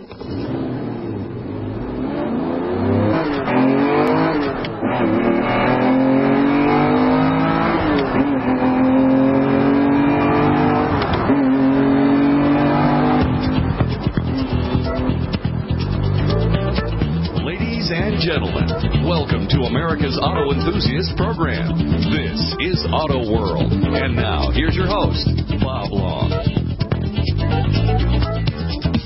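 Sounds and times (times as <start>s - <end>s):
car engine revving: 0.0s - 28.6s.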